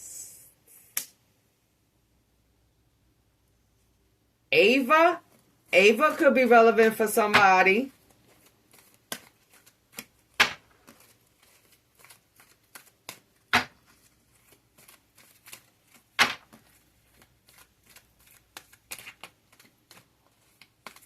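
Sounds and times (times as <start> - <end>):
cards being shuffled: 5.3 - 21.0.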